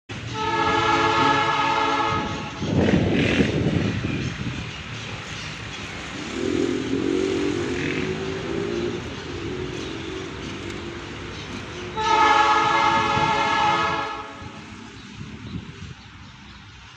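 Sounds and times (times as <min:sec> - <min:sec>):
locomotive horn chord: 0:00.1 - 0:02.8, 0:06.1 - 0:14.8
passing train rumble: 0:00.1 - 0:16.9.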